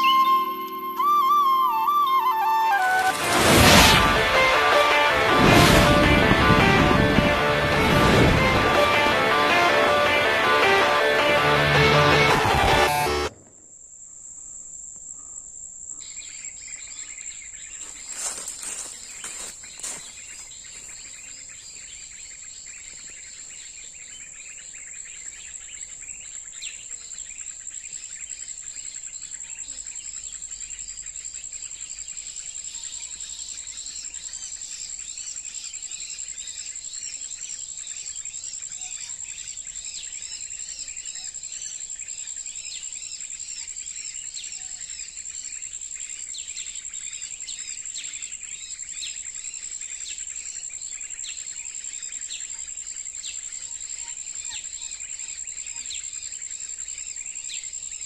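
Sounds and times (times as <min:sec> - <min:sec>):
high insect drone: 0:13.7 - 0:58.0
small birds chirping: 0:15.2 - 0:58.0.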